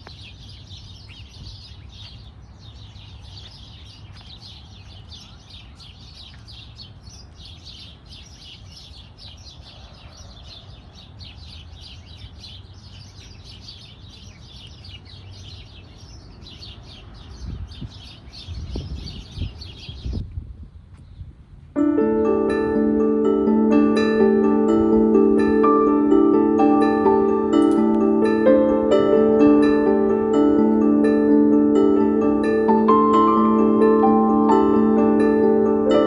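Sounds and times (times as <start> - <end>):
small birds chirping: 0.0 - 20.3.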